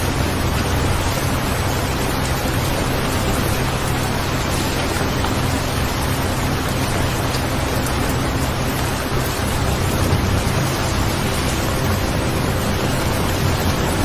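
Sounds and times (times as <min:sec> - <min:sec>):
steady rain hiss: 0:00.0 - 0:14.0.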